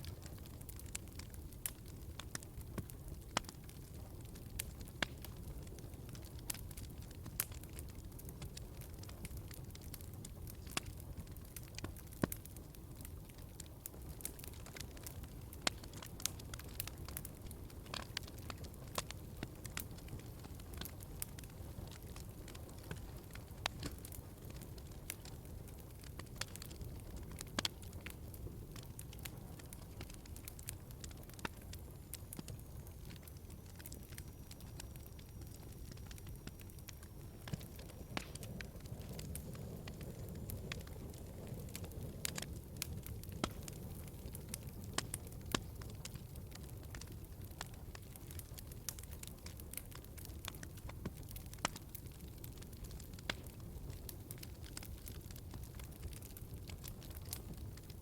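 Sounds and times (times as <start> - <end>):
wood fire popping and snapping: 0.0 - 58.0
flames rushing: 35.2 - 47.2.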